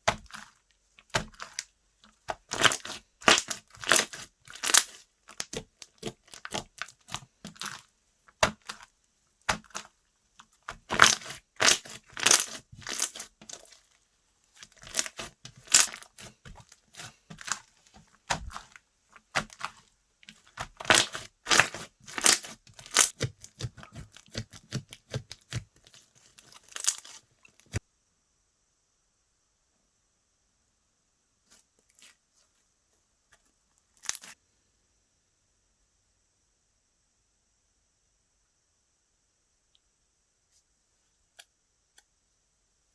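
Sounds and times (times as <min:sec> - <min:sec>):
slime crackling and popping: 0:00.1 - 0:01.7, 0:02.3 - 0:08.9, 0:09.5 - 0:13.9, 0:14.6 - 0:27.8.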